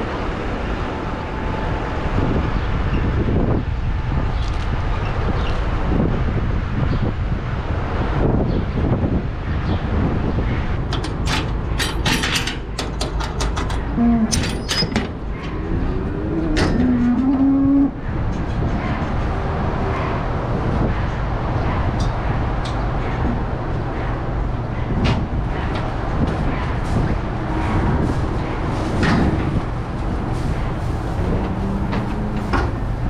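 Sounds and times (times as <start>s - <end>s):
metallic clanks and rattles: 10.9s - 17.4s
low drone: 13.9s - 23.2s, 30.3s - 33.0s
cows mooing: 14.0s - 14.8s, 15.4s - 18.1s, 31.0s - 33.0s.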